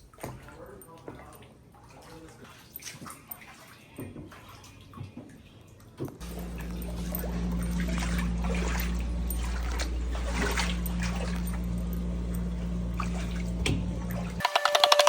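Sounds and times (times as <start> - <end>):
water trickling and splashing: 0.0 - 14.4
low mechanical hum: 6.2 - 15.0.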